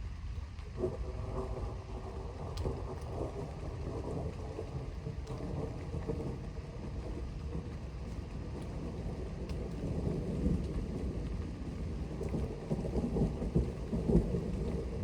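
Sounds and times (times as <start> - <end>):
distant thunder rumbling: 8.5 - 15.0.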